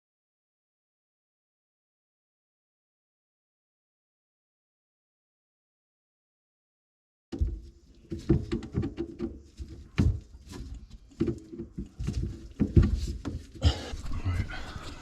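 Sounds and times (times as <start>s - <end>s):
hard objects knocking and clacking: 7.3s - 13.8s.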